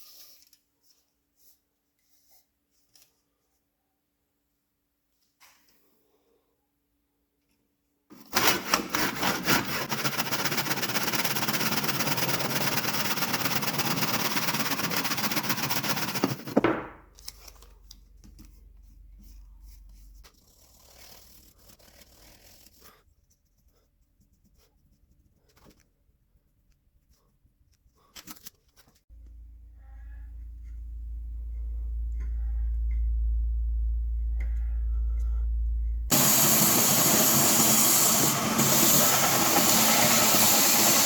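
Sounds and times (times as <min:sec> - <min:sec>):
low hum: 0:29.1 - 0:39.6.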